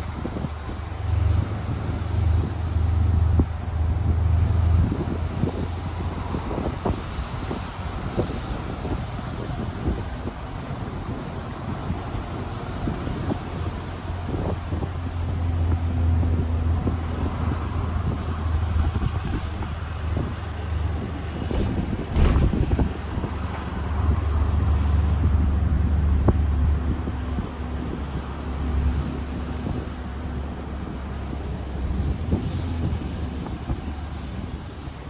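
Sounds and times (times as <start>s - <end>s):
road noise: 0.0s - 35.0s
vehicle engine rumble: 0.0s - 35.0s.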